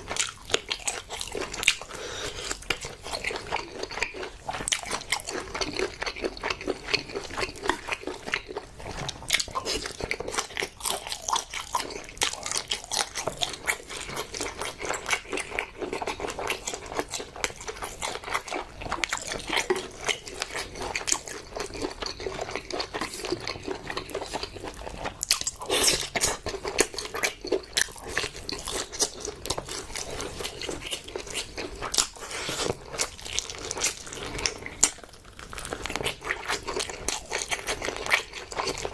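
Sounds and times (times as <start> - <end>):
close-miked chewing and biting: 0.0 - 38.9.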